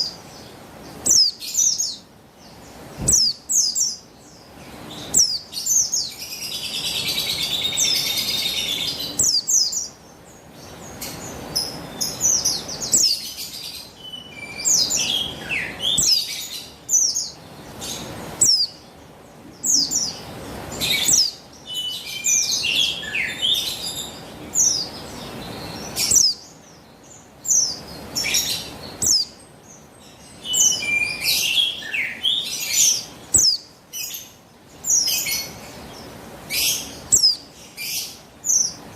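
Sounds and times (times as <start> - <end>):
bird high thin chirps: 3.0 - 4.0, 11.0 - 18.8, 27.5 - 29.4, 30.5 - 34.2, 36.6 - 38.8.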